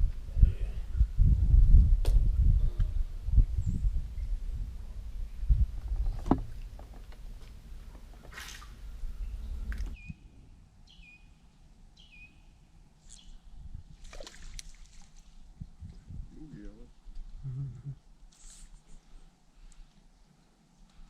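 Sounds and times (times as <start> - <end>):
wind buffeting microphone: 0.0 - 10.2, 13.4 - 14.2, 15.4 - 18.0
bird chirping: 8.2 - 13.5.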